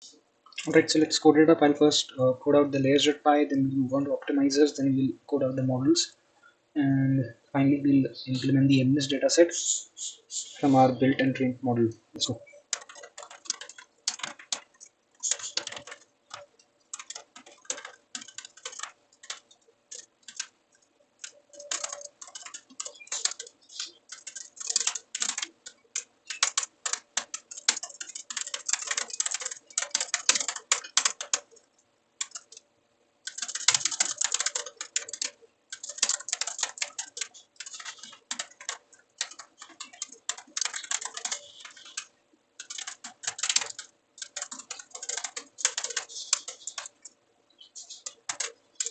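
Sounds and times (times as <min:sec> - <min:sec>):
faint steady hum: 0:00.0 - 0:48.9
keyboard typing clicks: 0:12.3 - 0:47.2, 0:47.8 - 0:48.9.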